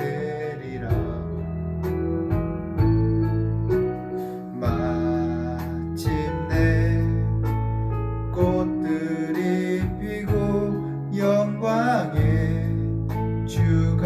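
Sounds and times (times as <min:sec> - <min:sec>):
person singing: 0:00.0 - 0:02.0, 0:04.2 - 0:07.7, 0:08.3 - 0:14.0
low bass: 0:00.0 - 0:14.0.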